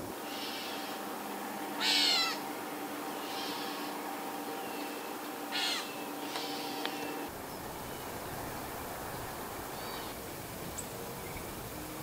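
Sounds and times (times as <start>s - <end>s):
faint high bird calls: 0.2s - 1.1s, 1.8s - 2.5s, 3.1s - 11.6s
songbird harsh calls: 0.2s - 1.1s, 1.8s - 2.5s, 3.1s - 8.2s, 9.1s - 11.6s.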